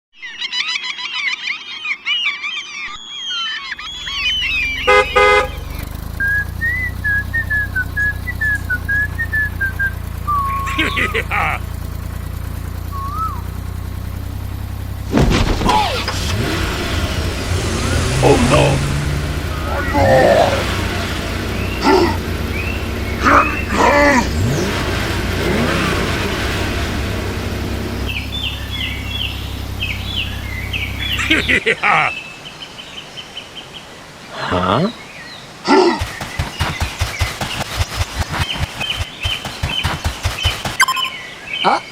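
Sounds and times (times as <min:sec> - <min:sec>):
birds chirping: 0:00.2 - 0:41.9
tractor engine rumbling: 0:03.7 - 0:31.8
tractor horn tooting: 0:04.6 - 0:08.8, 0:10.1 - 0:11.8, 0:19.0 - 0:26.3
person whistling a tune: 0:06.2 - 0:10.8, 0:12.9 - 0:13.5.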